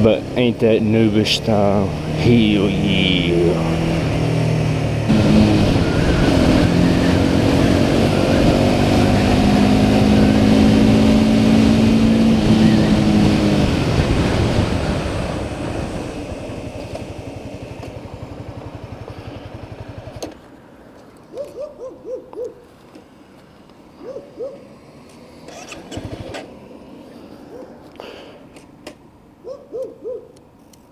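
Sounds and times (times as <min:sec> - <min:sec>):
motorcycle engine running: 0:00.0 - 0:20.5
wind noise: 0:05.0 - 0:16.9.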